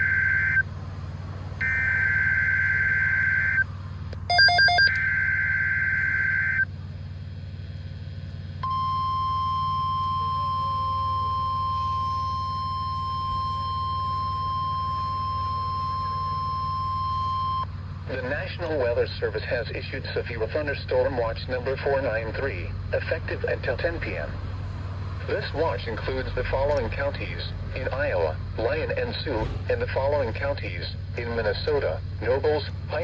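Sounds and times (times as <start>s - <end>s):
steady alarm tone: 0.0s - 0.6s, 1.6s - 3.6s, 4.3s - 6.7s, 8.6s - 17.7s
quick beeps: 4.3s - 6.6s, 8.6s - 17.6s.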